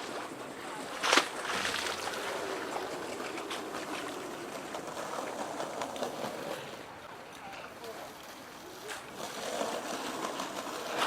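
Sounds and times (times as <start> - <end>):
waves lapping against pier: 0.0 - 11.0.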